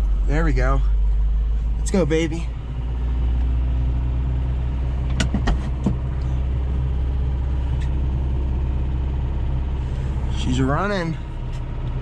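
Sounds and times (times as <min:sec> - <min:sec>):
truck engine idling fast: 0:00.0 - 0:12.0.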